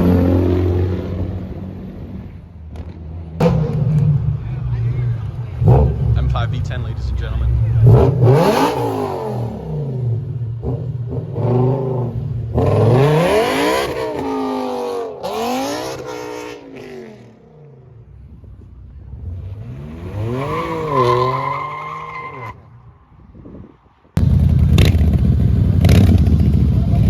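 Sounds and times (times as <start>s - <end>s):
car engine revving and accelerating: 5.5s - 17.9s, 19.0s - 22.5s.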